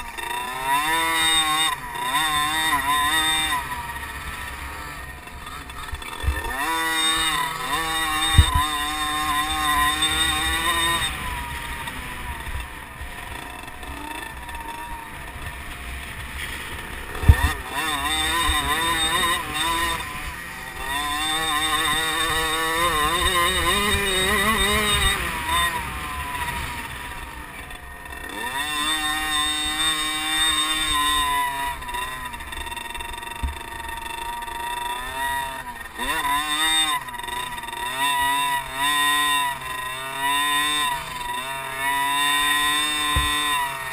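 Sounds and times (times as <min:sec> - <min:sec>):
motocross bike engines revving: 0:00.0 - 0:43.9
sharp thumps: 0:08.2 - 0:08.8, 0:16.4 - 0:17.7.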